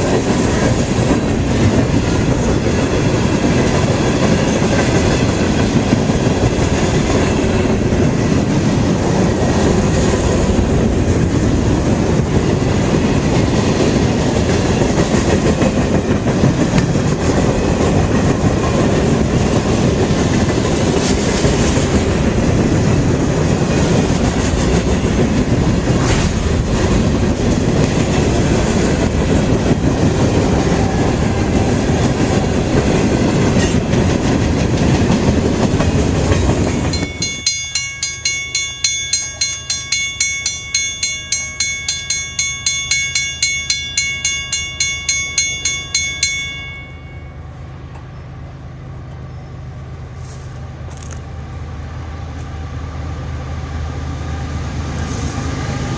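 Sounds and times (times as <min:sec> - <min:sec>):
train wheels on rails: 0:00.0 - 0:55.9
railroad crossing bell ringing: 0:35.9 - 0:50.0.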